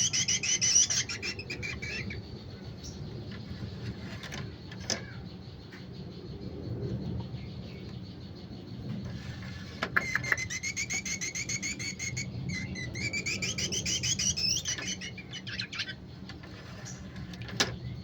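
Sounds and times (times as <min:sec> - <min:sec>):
bird chirping rapidly: 0:00.0 - 0:03.8, 0:07.5 - 0:17.1.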